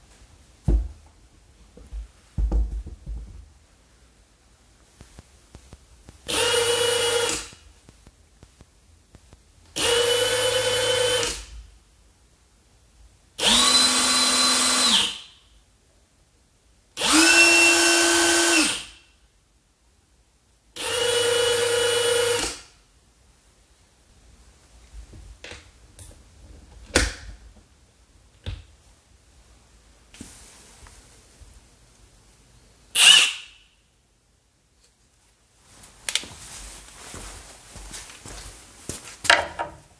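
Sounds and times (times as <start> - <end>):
impact wrench bursts: 6.3 - 7.6, 9.8 - 11.5, 13.4 - 15.4, 17.0 - 19.0, 20.8 - 22.7, 33.0 - 33.6.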